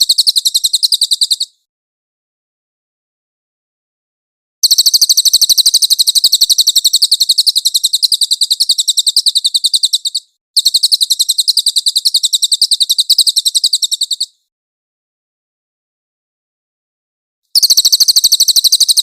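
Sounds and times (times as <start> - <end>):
songbird trilling high chirps: 0.0 - 1.6, 4.6 - 14.4, 17.6 - 19.0.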